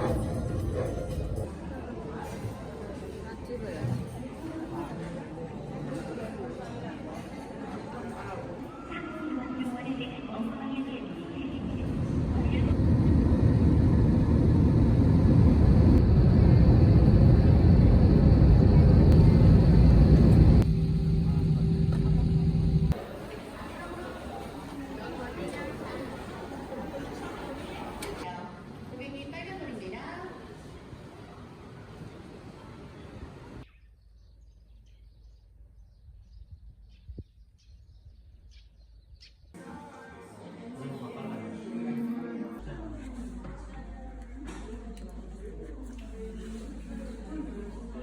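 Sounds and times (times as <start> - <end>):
moving vehicle rumble: 11.6 - 23.1.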